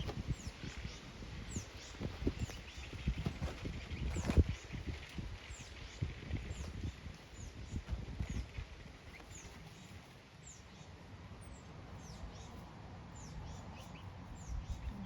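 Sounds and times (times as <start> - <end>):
low rustling and thumps: 0.0 - 0.6, 1.9 - 4.9
birds chirping: 0.0 - 15.0.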